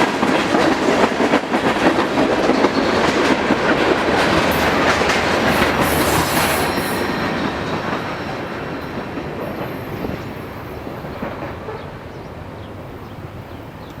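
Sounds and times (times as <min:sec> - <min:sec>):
freight cars rolling on rails: 0:00.0 - 0:14.0.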